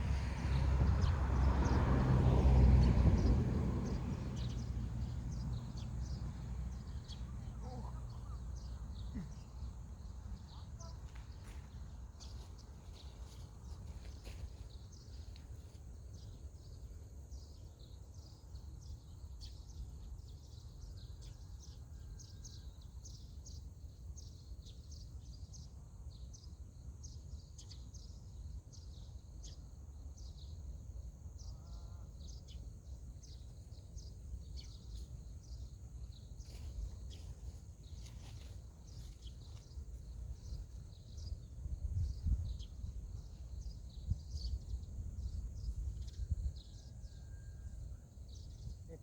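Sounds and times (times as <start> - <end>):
wind rumble on microphone: 0.0 - 7.4, 34.0 - 49.0.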